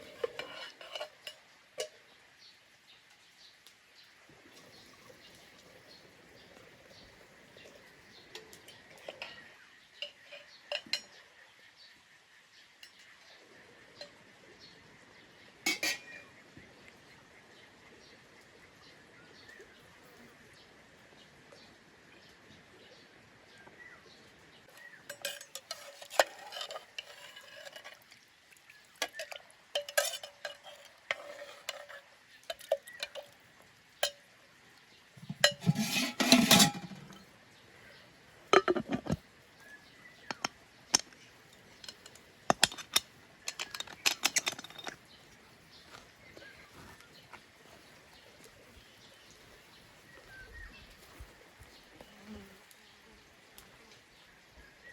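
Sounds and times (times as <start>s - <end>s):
clattering scrape: 0.0s - 1.2s, 25.1s - 28.0s, 29.8s - 32.0s, 35.2s - 37.2s, 38.6s - 39.2s, 41.8s - 45.0s
pots and utensils clinking: 0.0s - 2.0s, 7.6s - 11.2s, 12.8s - 13.3s, 15.6s - 16.4s, 24.7s - 28.1s, 29.0s - 33.4s, 34.0s - 34.3s, 35.2s - 37.3s, 38.5s - 39.2s, 40.1s - 45.2s.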